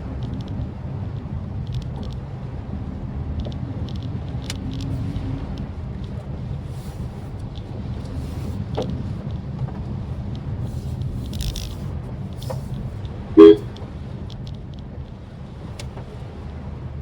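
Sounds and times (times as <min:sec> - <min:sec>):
car driving from inside: 0:00.0 - 0:17.0
car horn toot: 0:13.4 - 0:13.7.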